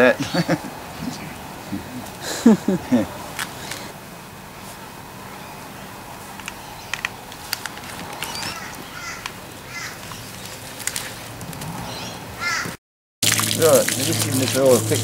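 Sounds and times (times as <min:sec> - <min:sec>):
birds chirping: 0:00.0 - 0:03.9, 0:05.2 - 0:12.8.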